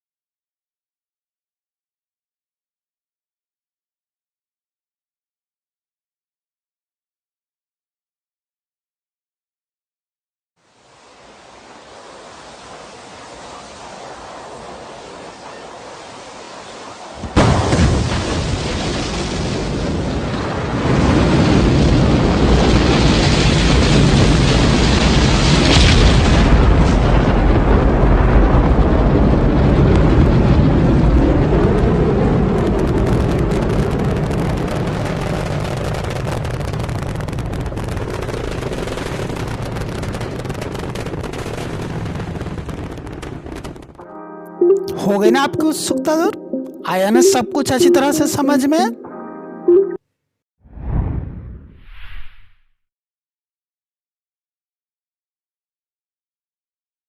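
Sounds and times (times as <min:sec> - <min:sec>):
heavy rocket exhaust roar: 0:19.6 - 0:40.6.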